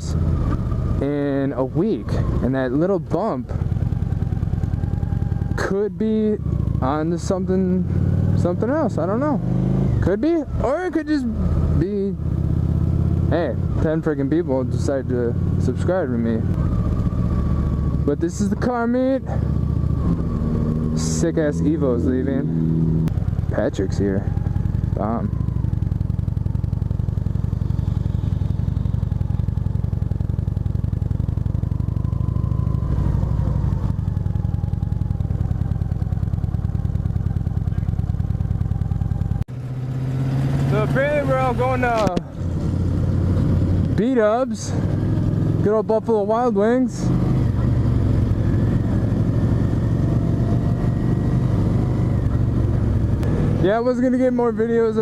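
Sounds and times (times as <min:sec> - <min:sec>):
motorcycle engine idling: 0:00.0 - 0:09.3, 0:10.0 - 0:55.0
vehicle passing by: 0:39.5 - 0:45.5.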